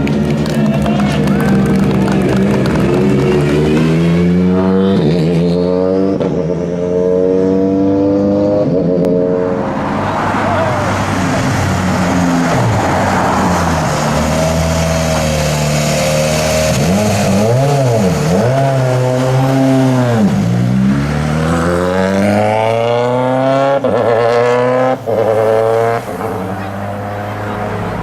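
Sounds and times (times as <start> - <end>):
rally car engine running hard: 0.0 - 8.8.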